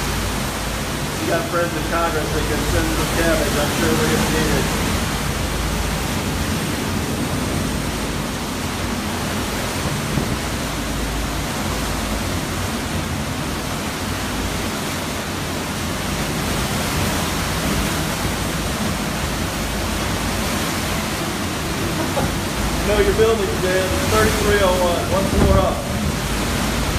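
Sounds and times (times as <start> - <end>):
wind gusts buffeting microphone: 0.0 - 26.9
strong wind rushing: 16.4 - 26.9.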